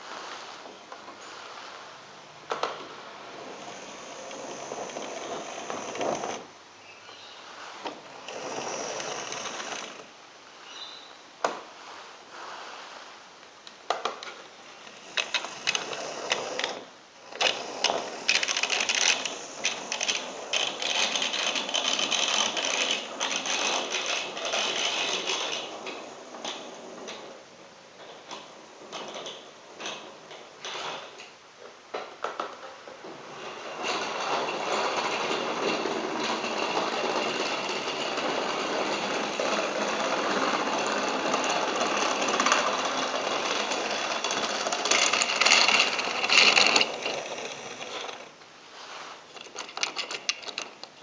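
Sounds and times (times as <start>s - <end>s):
model train wheels clattering: 2.5s - 6.5s, 7.6s - 10.1s, 13.9s - 31.3s, 31.9s - 51.0s
small electric motor whirring: 8.2s - 10.1s, 14.8s - 26.9s.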